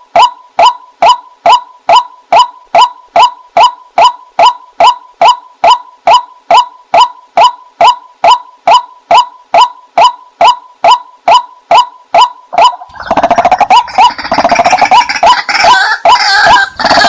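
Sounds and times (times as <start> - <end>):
waterhen calls: 11.3 - 17.0
chorus of overlapping bird calls: 12.5 - 17.0.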